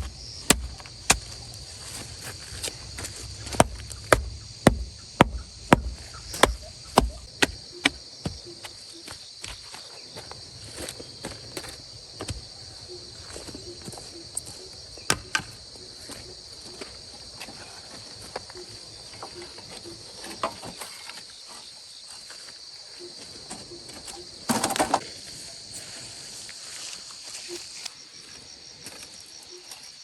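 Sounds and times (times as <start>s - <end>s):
sharp knocks and clicks: 0.0s - 2.0s, 2.6s - 8.5s
insects chirring: 0.0s - 30.0s.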